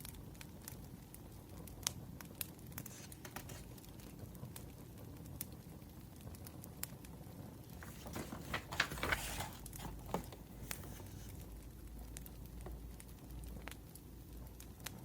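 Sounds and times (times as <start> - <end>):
firewood crackling and popping: 0.4 - 7.8
rustling and clicks: 2.8 - 3.8, 7.8 - 11.5.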